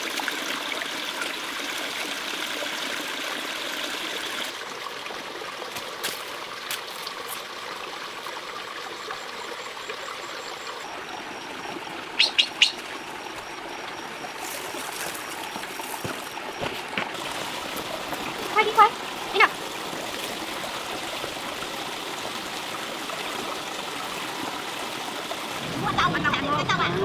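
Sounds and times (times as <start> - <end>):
trickle of flowing water: 0.0 - 27.0.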